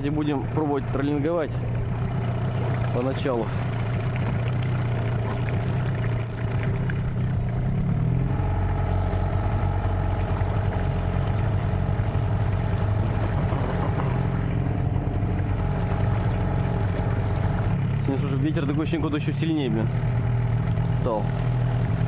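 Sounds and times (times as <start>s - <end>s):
outboard motor running at low speed: 0.0s - 22.0s.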